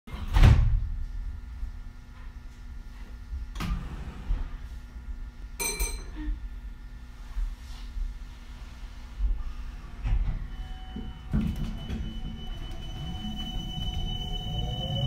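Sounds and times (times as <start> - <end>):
low steady train rumble: 8.2 - 15.0
brief high ringing tone: 10.5 - 15.0.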